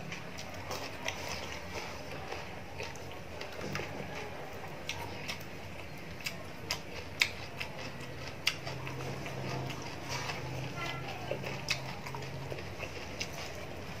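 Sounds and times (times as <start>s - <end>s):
crunchy chewing: 0.0s - 14.0s.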